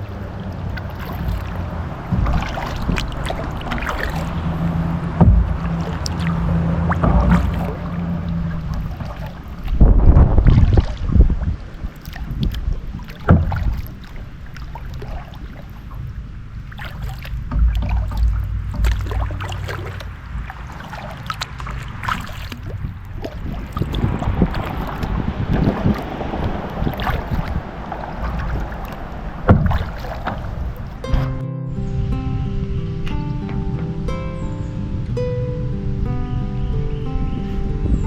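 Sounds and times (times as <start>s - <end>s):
paddle splashes in water: 0.0s - 31.4s
wind rumble on microphone: 0.0s - 38.0s
knocks on kayak: 1.0s - 11.6s, 12.3s - 13.9s, 16.8s - 20.7s, 22.7s - 31.4s
loud thump: 2.1s - 7.9s, 9.8s - 11.4s, 13.3s - 13.8s, 17.4s - 19.5s, 29.5s - 30.0s.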